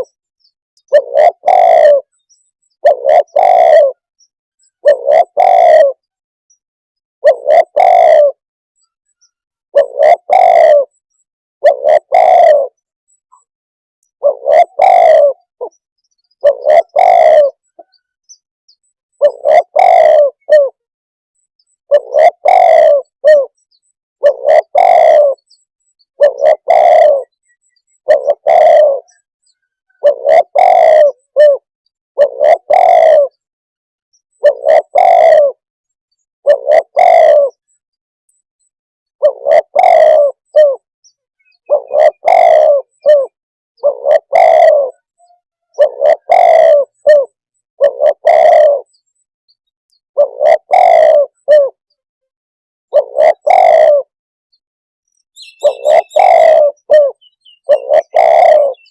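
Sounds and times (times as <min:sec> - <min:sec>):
dove cooing: 0:00.8 - 0:06.2, 0:07.2 - 0:08.4, 0:09.7 - 0:11.0, 0:11.6 - 0:13.2, 0:14.2 - 0:18.0, 0:19.1 - 0:20.9, 0:21.9 - 0:23.6, 0:24.2 - 0:25.6, 0:26.2 - 0:33.5, 0:34.3 - 0:35.6, 0:36.4 - 0:37.8, 0:39.2 - 0:49.2, 0:50.2 - 0:51.9, 0:52.9 - 0:54.1, 0:55.4 - 0:58.9.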